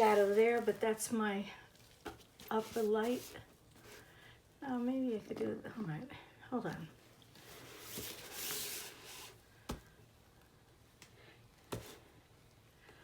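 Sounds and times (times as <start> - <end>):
rustling scrape on work surface: 0.0 - 1.0, 2.5 - 4.0, 7.4 - 9.4.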